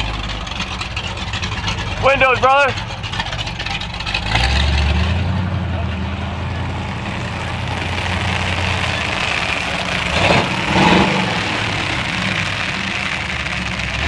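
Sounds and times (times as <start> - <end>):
car engines idling: 0.0 - 14.0.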